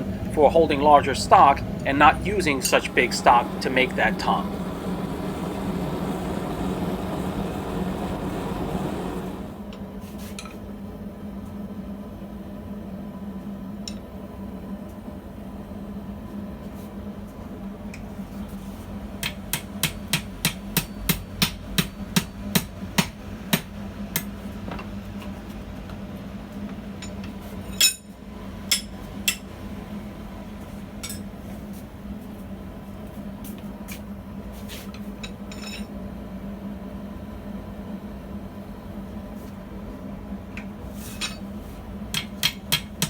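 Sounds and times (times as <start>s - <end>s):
steady low hum: 0.0s - 9.8s
hammer striking steel on anvil: 19.2s - 24.3s, 28.7s - 29.5s, 42.1s - 43.0s.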